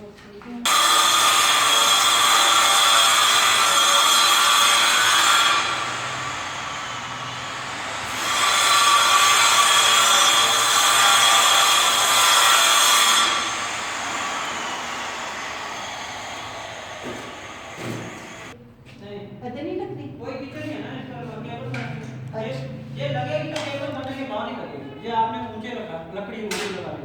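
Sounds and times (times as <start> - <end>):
electric power cutting tool whine: 0.7 - 18.6.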